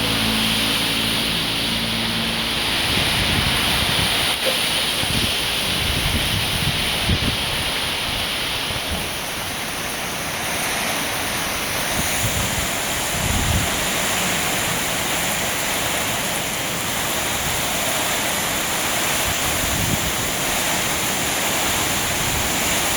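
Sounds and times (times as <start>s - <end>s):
heavy rain pouring: 0.0s - 22.9s
wind gusts buffeting microphone: 0.0s - 22.9s.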